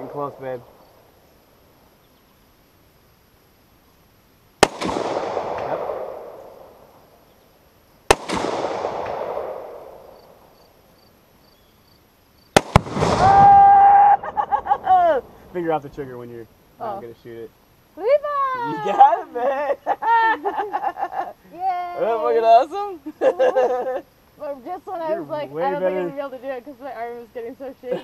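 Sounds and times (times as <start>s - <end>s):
rifle shots with rolling echo: 4.6s - 7.2s, 8.0s - 10.6s, 12.5s - 13.6s
explosion blast: 12.6s - 15.6s
person shouting: 13.2s - 14.3s, 18.4s - 19.2s.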